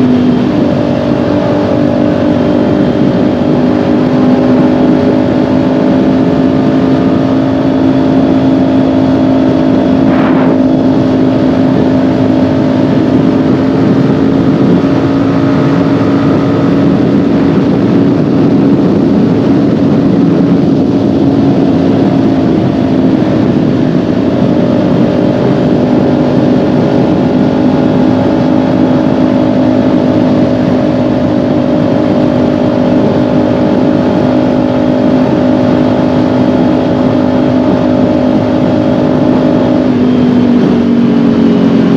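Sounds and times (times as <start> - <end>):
motorcycle engine cruising: 0.0 - 41.9
wind and road noise: 0.0 - 41.9.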